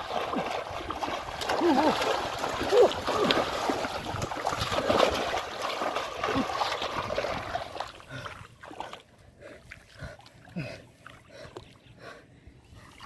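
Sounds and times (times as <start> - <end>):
hands splashing muddy water: 0.0 - 9.1.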